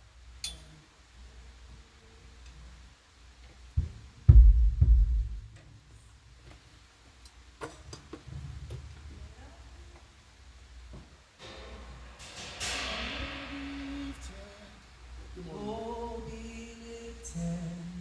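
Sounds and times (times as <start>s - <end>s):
bass drum hits: 3.8s - 5.6s
sharp low drum thump: 3.8s - 5.6s.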